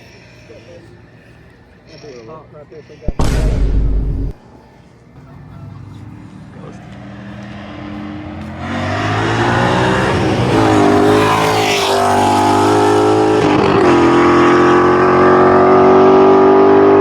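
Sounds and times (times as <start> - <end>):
car engine revving hard: 7.1 - 17.0.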